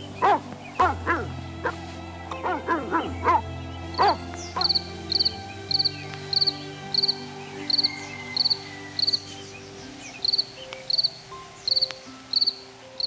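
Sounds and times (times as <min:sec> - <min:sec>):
dog yelp: 0:00.2 - 0:01.8, 0:02.4 - 0:03.4, 0:04.0 - 0:04.8
cricket chirping: 0:04.0 - 0:12.7.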